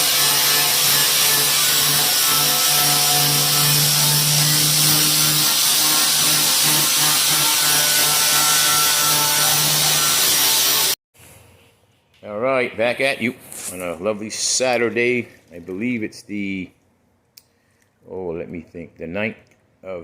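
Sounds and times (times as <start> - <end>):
grinder sanding steel: 0.0 - 11.0.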